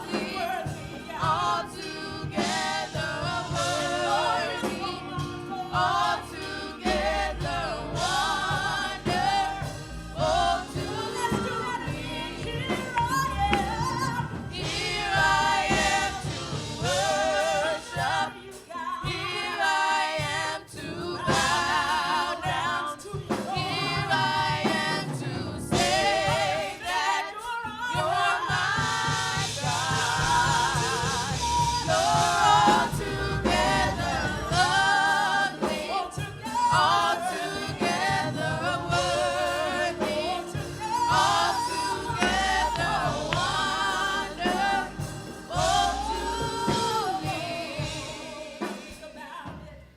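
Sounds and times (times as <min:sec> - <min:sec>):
choir singing gospel: 0:00.0 - 0:49.9
instrumental accompaniment: 0:00.0 - 0:49.9.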